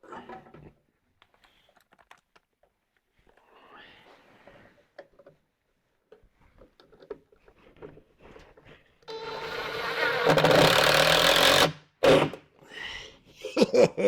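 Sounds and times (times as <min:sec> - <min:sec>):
power drill driving a screw: 0:09.1 - 0:12.4.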